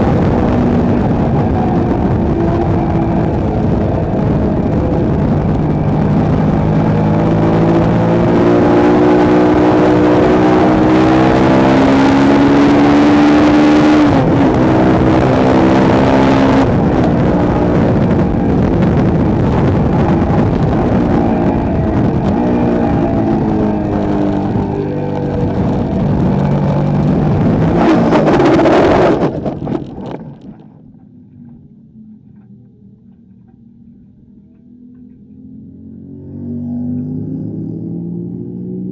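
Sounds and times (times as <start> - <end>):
wind rush: 0.0 - 30.8
motorcycle engine shifting up: 0.0 - 36.3.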